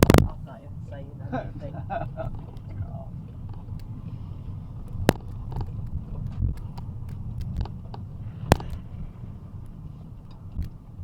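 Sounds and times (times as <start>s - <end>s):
sharp clicks: 0.0s - 0.3s, 4.9s - 8.8s
low engine rumble: 0.0s - 11.0s.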